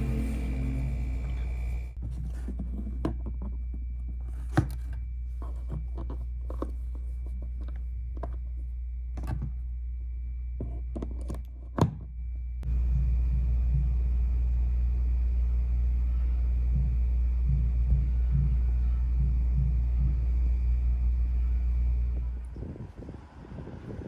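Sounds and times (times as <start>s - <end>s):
faint high whine: 0.0s - 2.0s, 12.2s - 23.5s
steady low hum: 0.0s - 24.0s.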